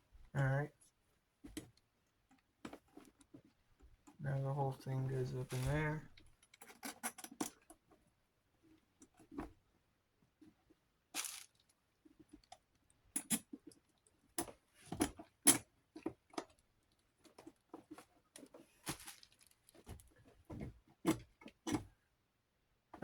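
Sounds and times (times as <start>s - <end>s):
metal parts clicking and knocking: 13.1s - 13.8s.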